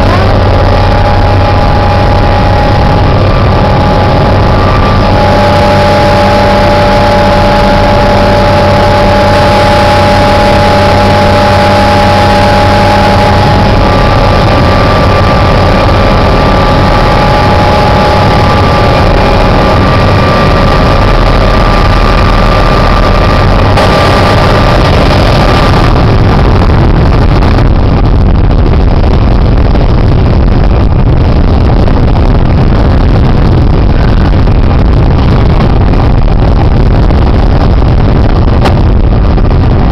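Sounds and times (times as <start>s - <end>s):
helicopter engine and rotor: 0.0s - 27.5s
whining tones: 0.0s - 39.9s.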